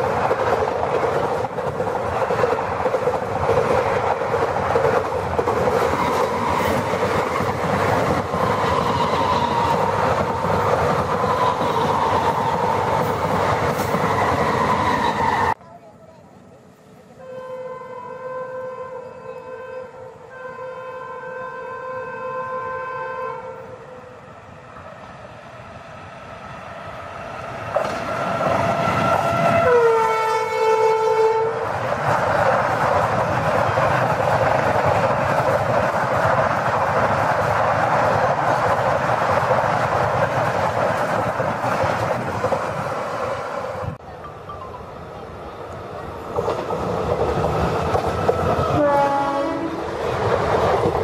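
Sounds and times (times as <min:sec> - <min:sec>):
train passing with loud rush: 0:00.0 - 0:51.0
locomotive horn blast: 0:17.2 - 0:24.2, 0:29.2 - 0:31.6, 0:48.7 - 0:49.8.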